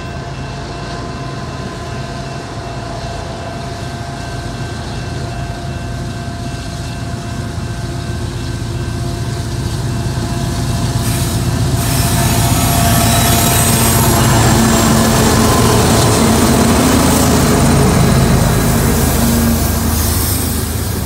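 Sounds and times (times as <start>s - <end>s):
diesel locomotive engine rumble: 0.0s - 21.0s
crossing signal ringing: 4.5s - 21.0s
wheels hissing on rail: 6.0s - 21.0s.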